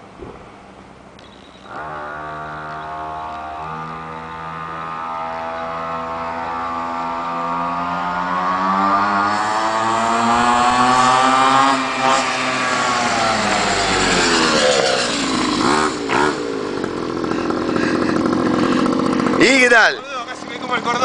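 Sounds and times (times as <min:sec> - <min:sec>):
mini motorbike engine accelerating: 0:01.6 - 0:21.0.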